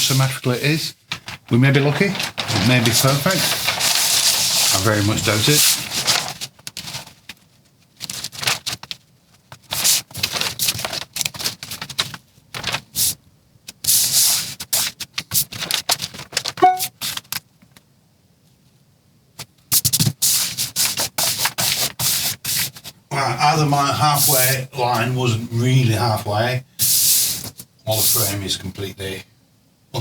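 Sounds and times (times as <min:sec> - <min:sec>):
plastic sheet crinkling: 0:01.1 - 0:09.0, 0:09.6 - 0:13.0, 0:15.2 - 0:17.4.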